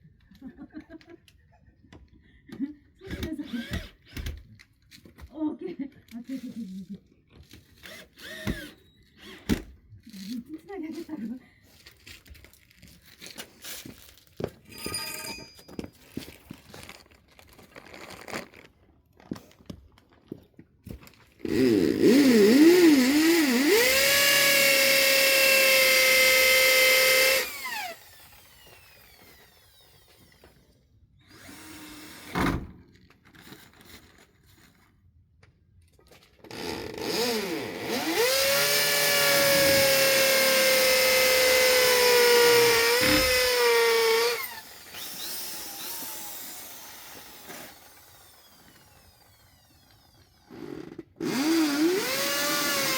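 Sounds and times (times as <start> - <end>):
electric power tool motor whining: 7.8 - 9.6, 21.4 - 30.7, 31.3 - 32.6, 36.4 - 52.9.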